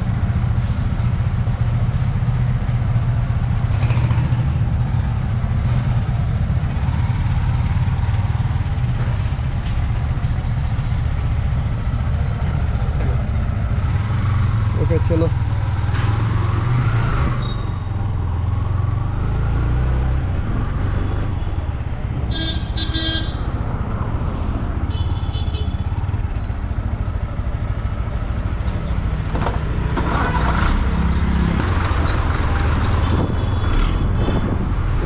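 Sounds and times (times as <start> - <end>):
motorcycle engine running: 3.0 - 31.0
vehicle horns honking: 20.7 - 23.6, 24.8 - 26.0
wind rumble on microphone: 31.6 - 35.0.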